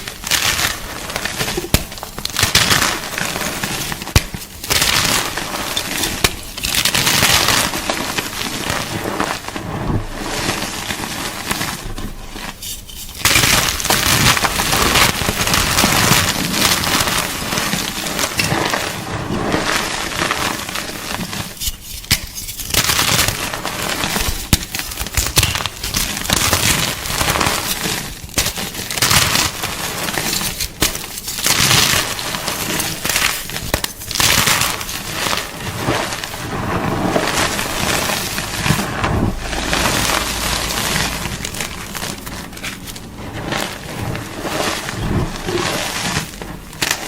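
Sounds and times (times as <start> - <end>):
chalk being crushed: 0.0 - 47.0.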